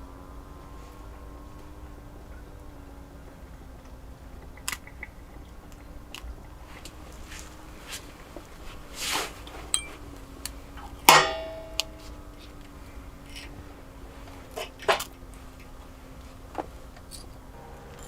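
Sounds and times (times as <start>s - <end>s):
sharp metallic clank: 9.8s - 10.0s, 11.1s - 12.2s.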